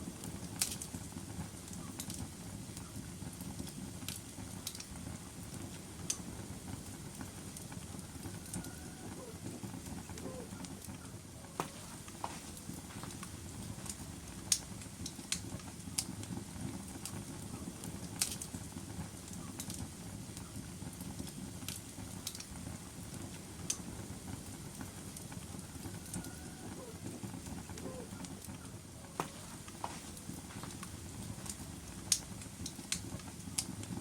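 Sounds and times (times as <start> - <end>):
low rumble of flames: 0.0 - 34.0
wood pops and snaps: 29.2 - 32.3.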